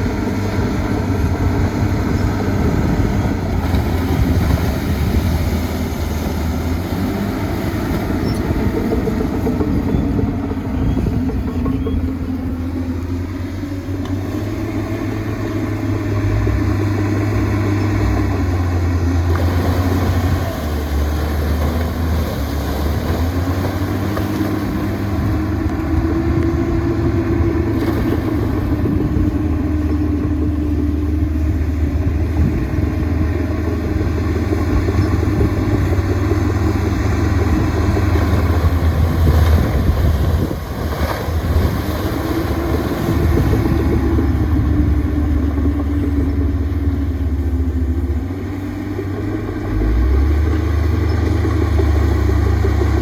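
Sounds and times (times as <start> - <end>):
heavy diesel engine under load: 0.0 - 53.0.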